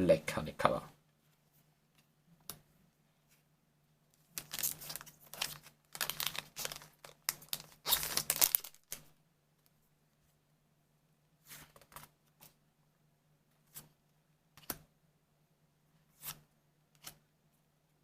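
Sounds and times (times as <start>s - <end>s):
foil wrapper crinkling and tearing: 4.4s - 9.1s.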